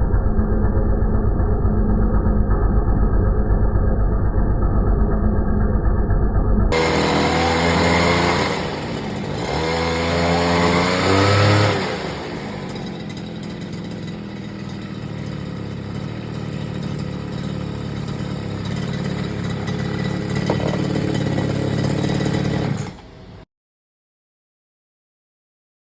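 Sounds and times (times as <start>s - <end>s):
brush cutter engine revving and idling: 6.7s - 23.4s.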